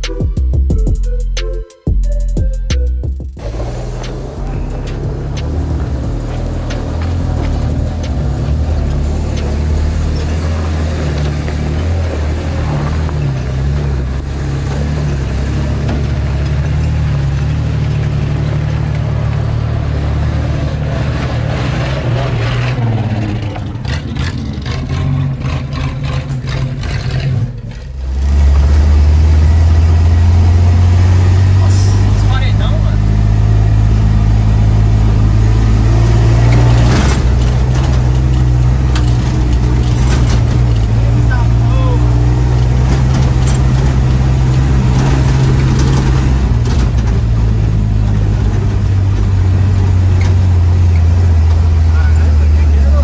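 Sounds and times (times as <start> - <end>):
vehicle engine running: 2.7 - 53.0
clicks and rattles: 36.5 - 41.2.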